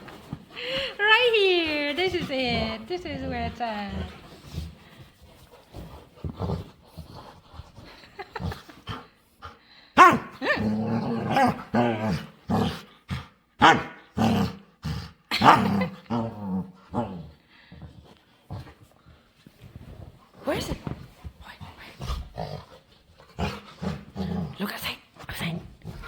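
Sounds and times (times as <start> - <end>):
dog growly woofs: 10.0 - 13.3, 14.1 - 17.4, 22.0 - 26.0.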